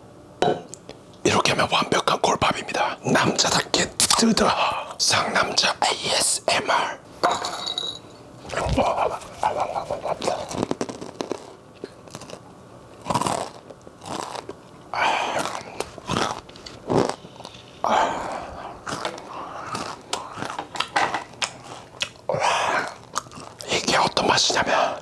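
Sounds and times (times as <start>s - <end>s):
crunching and chewing food: 9.4s - 24.2s.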